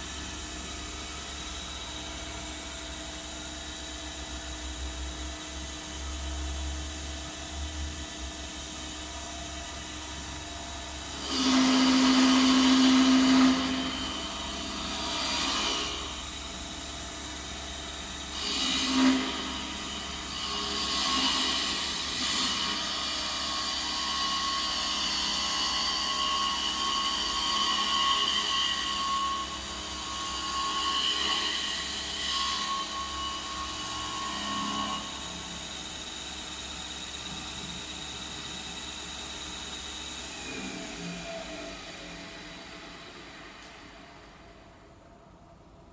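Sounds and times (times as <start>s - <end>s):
lathe motor whine: 8.4s - 45.8s
tool cutting spinning wood: 10.9s - 16.4s.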